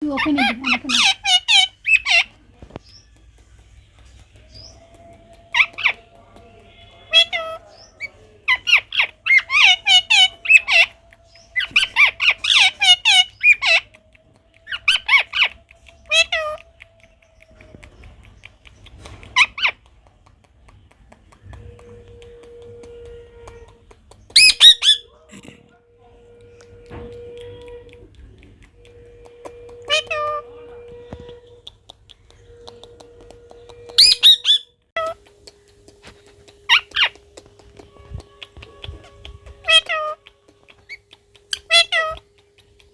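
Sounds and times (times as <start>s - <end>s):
parrot squawking: 0.0s - 2.4s, 5.5s - 6.0s, 7.1s - 13.9s, 14.7s - 16.7s, 19.3s - 19.9s, 24.4s - 25.2s, 29.4s - 31.8s, 32.4s - 35.2s, 36.5s - 37.3s, 38.3s - 42.9s.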